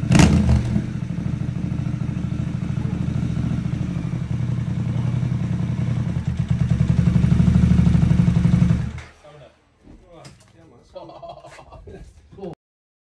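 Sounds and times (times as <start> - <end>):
motorcycle engine idling: 0.0 - 9.1.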